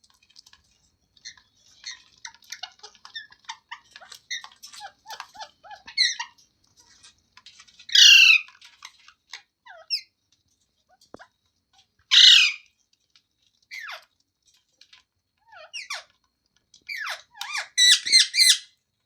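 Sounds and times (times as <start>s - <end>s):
parakeet chirping: 1.2s - 6.4s, 7.9s - 8.5s, 12.1s - 12.6s, 16.9s - 18.7s
loud parakeet call: 8.0s - 8.4s, 12.1s - 12.6s.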